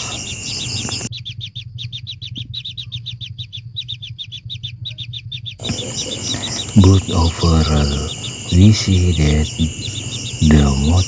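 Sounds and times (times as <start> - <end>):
buzzing insect chorus: 0.0 - 1.1, 5.6 - 11.0
bird chirping rapidly: 0.0 - 11.0
steady low hum: 0.0 - 11.0.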